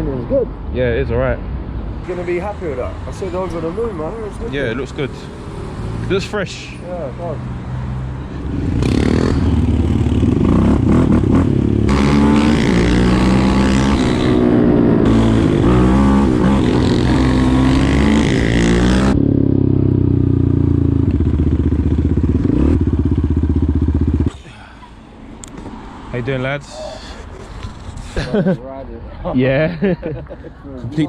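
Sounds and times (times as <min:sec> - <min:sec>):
small bike engines revving: 0:08.3 - 0:20.1, 0:21.4 - 0:24.4.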